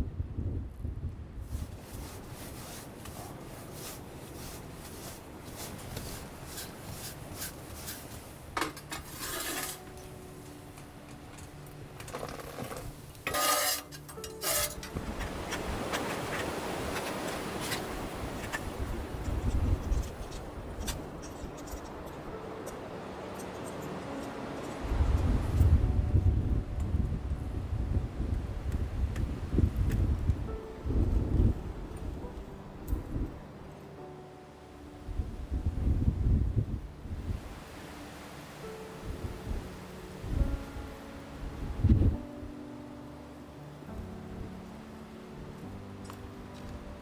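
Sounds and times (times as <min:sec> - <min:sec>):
utensils scraping cookware: 0:06.5 - 0:10.1, 0:12.1 - 0:21.9.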